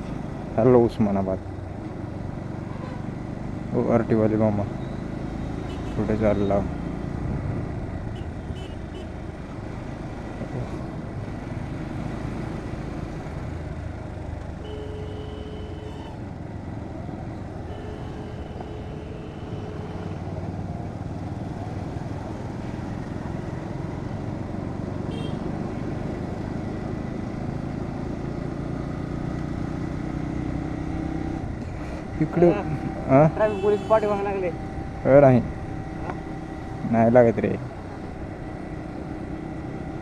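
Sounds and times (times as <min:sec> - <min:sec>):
city traffic: 0:00.0 - 0:40.0
motorcycle engine riding: 0:00.0 - 0:40.0
horn blasts: 0:14.6 - 0:16.2, 0:17.6 - 0:20.3, 0:25.1 - 0:25.4, 0:33.4 - 0:34.3.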